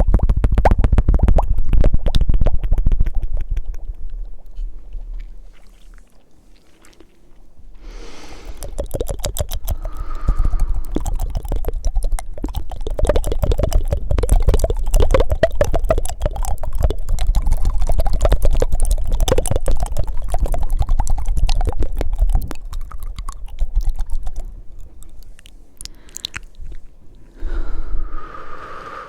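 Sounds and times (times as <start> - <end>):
wet mouth tongue flutters and clicks: 0.0 - 6.1, 8.0 - 29.0
breath: 7.8 - 8.8, 9.6 - 11.7, 25.3 - 26.6, 27.2 - 29.0.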